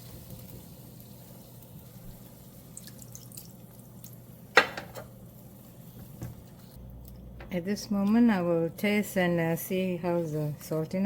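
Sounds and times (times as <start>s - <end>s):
sauce popping in a pan: 0.0s - 6.2s.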